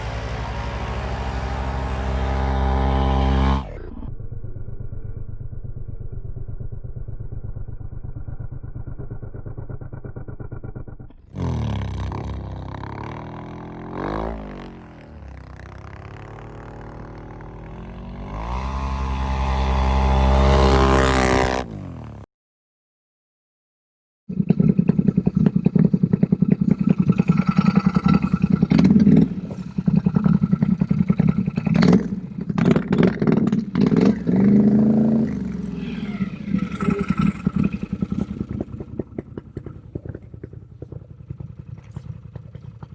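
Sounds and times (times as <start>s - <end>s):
atv engines revving: 0.0s - 4.1s, 8.2s - 22.3s, 24.6s - 42.9s.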